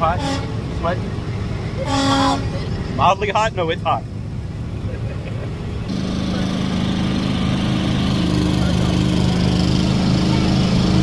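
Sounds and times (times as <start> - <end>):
small engine running: 5.9 - 11.0.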